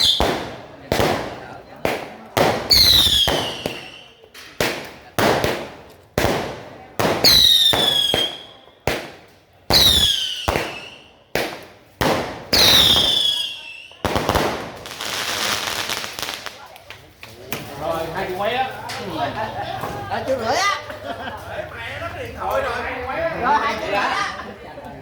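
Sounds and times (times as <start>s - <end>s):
fireworks bangs: 0.0s - 16.8s
falling firework whistle: 12.5s - 14.0s.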